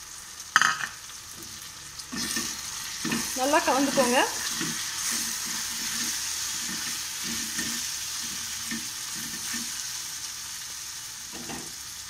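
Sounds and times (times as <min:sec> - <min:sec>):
masala sizzling in a pan: 0:00.0 - 0:12.0
spoon stirring against pan: 0:00.6 - 0:09.9.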